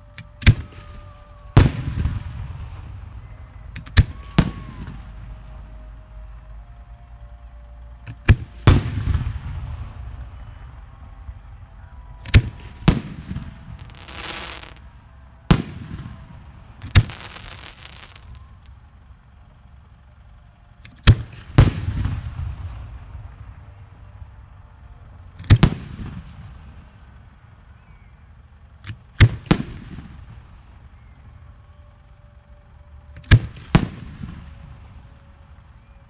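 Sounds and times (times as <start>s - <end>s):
fireworks hissing crackle: 0.0s - 36.0s
rumbling echoes: 0.0s - 36.0s
fireworks booming: 0.3s - 5.9s, 8.2s - 19.0s, 21.1s - 24.5s, 25.4s - 27.0s, 29.2s - 30.6s, 33.2s - 34.8s.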